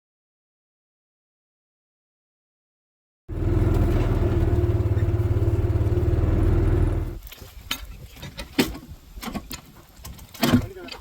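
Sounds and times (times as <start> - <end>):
engine running with fast pulse: 3.3 - 7.2.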